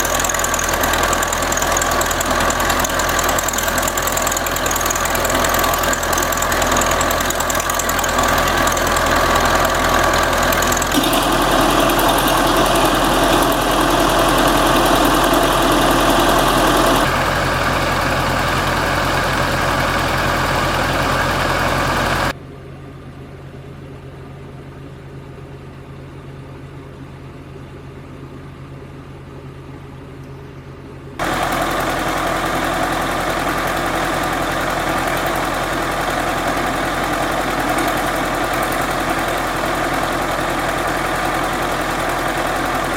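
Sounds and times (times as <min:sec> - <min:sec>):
farm machine engine running: 0:00.0 - 0:22.4, 0:31.2 - 0:42.9.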